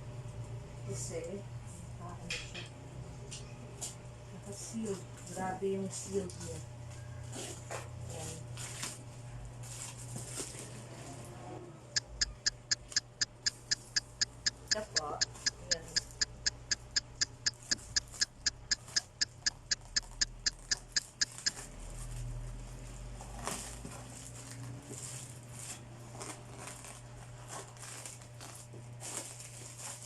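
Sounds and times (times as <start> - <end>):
even ticking: 12.0 - 21.6.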